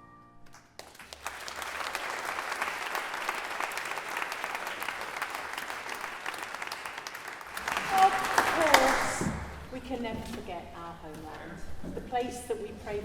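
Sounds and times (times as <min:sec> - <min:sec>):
audience applauding: 0:00.5 - 0:09.6.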